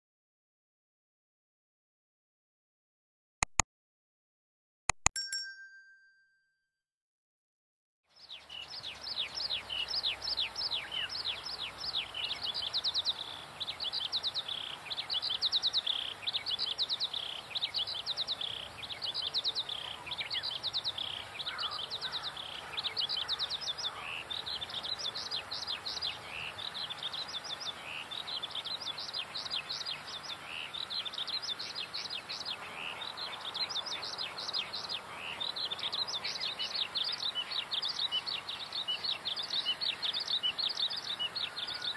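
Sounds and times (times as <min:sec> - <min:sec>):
birds chirping: 0:08.1 - 0:41.9
faint steady hiss: 0:08.1 - 0:41.9.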